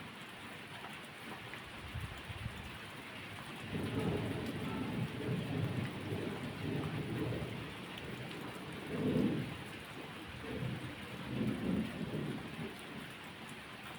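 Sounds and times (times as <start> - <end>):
steady rain: 0.0 - 13.9
low rolling thunder: 3.6 - 12.8.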